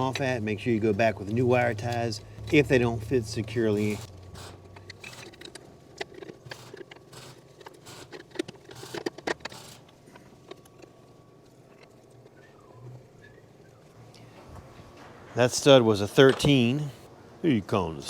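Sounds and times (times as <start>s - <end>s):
tools and metal parts clattering: 3.7s - 11.0s.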